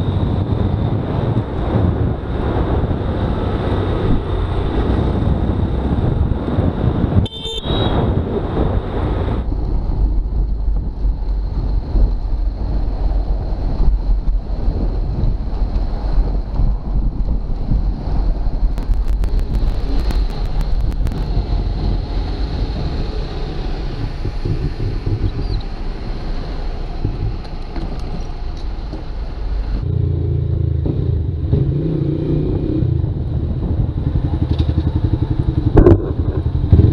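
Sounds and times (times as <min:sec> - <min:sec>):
wind on microphone: 0:00.0 - 0:36.9
high-pitched vehicle horn toot: 0:07.2 - 0:08.1
motorcycle engine: 0:29.8 - 0:36.9.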